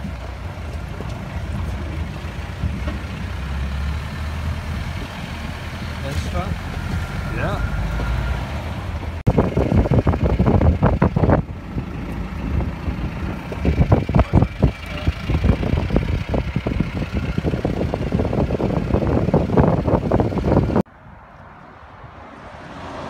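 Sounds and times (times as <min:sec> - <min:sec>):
clattering knocks and rattles: 0:00.0 - 0:03.7
diesel engine running: 0:00.0 - 0:20.9.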